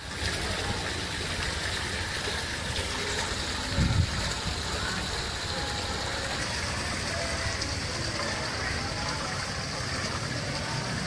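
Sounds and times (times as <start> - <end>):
waterfall splashing into pond: 0.0 - 11.0.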